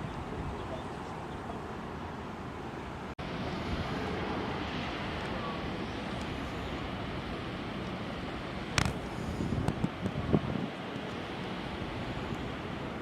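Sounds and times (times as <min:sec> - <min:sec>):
wind on microphone: 0:08.7 - 0:10.9.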